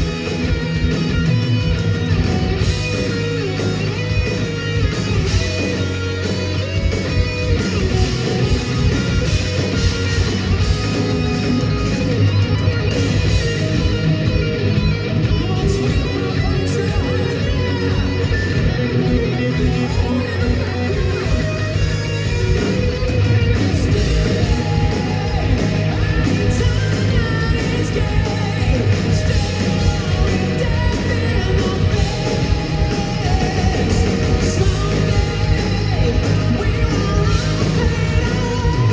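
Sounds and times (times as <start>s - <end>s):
heavy metal band playing live: 0.0s - 38.9s
person singing: 23.6s - 38.9s.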